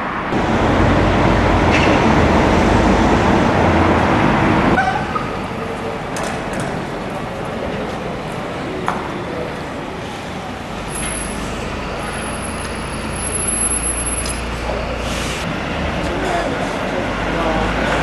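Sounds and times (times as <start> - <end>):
deep engine rumble: 0.0 - 18.0
street noise: 0.0 - 18.0.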